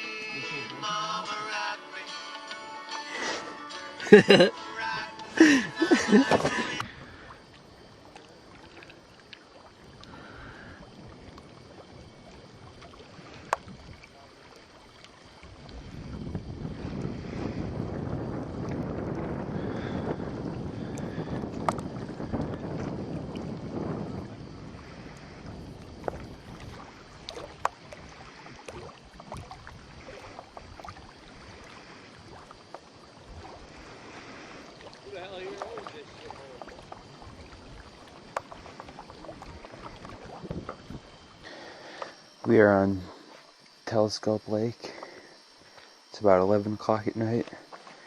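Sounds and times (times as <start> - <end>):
faint water noise: 0.0 - 48.0
paddle knocks and clicks on canoe: 13.5 - 13.7, 21.5 - 22.9, 26.0 - 27.8, 38.2 - 40.9.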